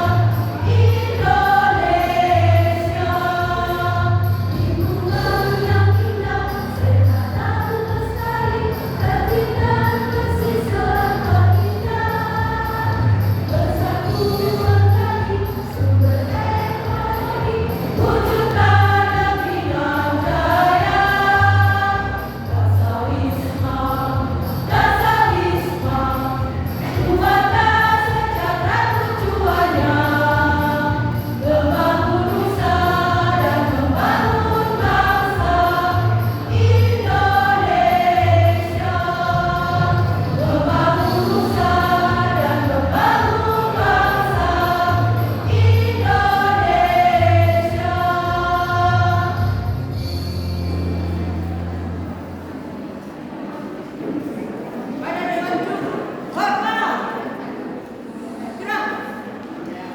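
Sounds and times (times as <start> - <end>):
choir singing: 0.0 - 50.0.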